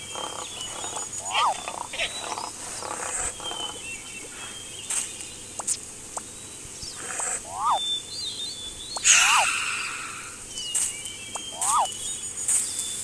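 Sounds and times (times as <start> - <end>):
harsh bird calls: 0.0 - 13.0
bird chirps and whistles: 6.8 - 12.2.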